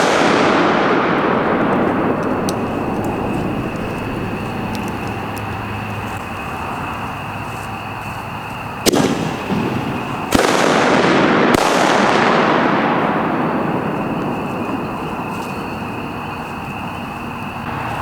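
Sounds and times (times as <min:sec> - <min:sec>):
firework shells bursting: 0:00.0 - 0:06.4, 0:08.8 - 0:16.7
crackling firework hiss: 0:00.0 - 0:18.0.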